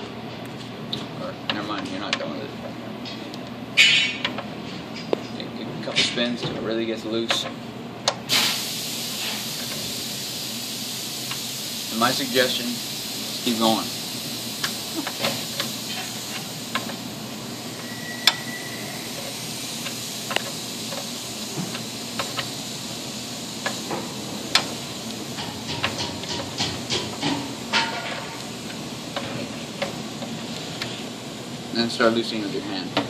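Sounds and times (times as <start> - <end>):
steady hiss: 8.2 - 33.0.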